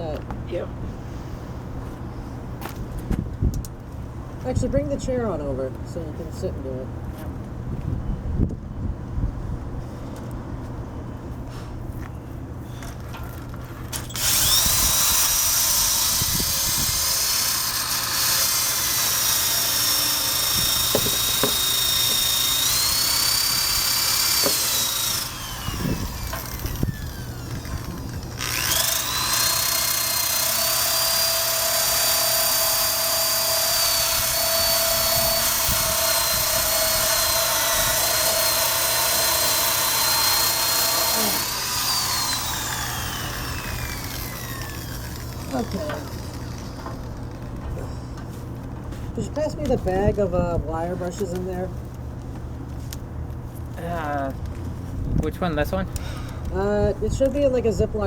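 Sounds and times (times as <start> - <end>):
power drill wire brush on metal: 13.9 - 47.4.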